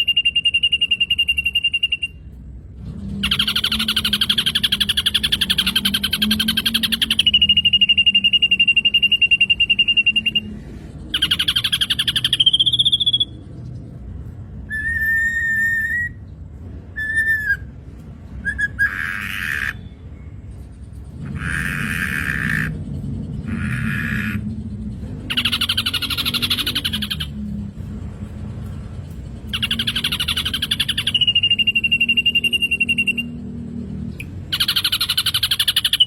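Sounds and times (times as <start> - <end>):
bird held whistle: 0.0 - 2.3, 3.2 - 13.4, 14.7 - 16.2, 17.0 - 17.7, 29.5 - 33.4
harsh bird call: 3.2 - 13.4, 18.4 - 20.0, 21.2 - 22.8.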